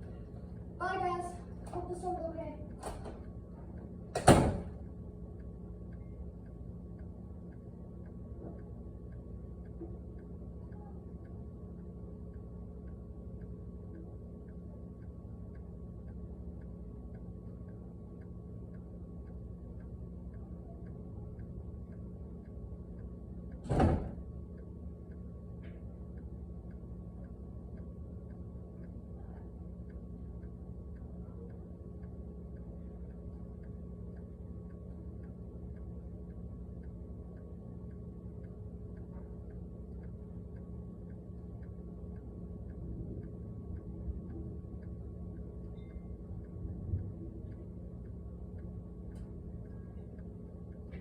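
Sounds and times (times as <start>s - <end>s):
steady low hum: 0.0s - 51.0s
door shutting with thud: 2.8s - 3.2s, 4.1s - 4.8s, 23.6s - 24.2s
faint ticks: 24.6s - 51.0s.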